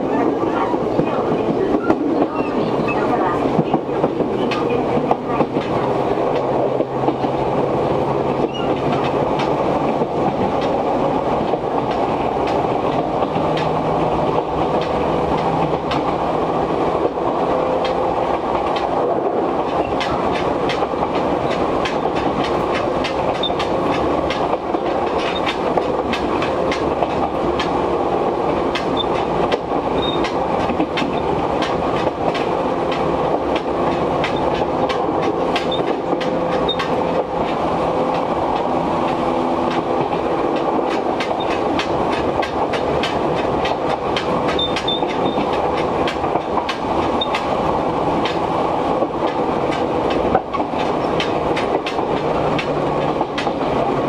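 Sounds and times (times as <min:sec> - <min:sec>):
train wheels rumbling on rails: 0:00.0 - 0:54.0
gangway plates clicking and clanking: 0:17.0 - 0:54.0.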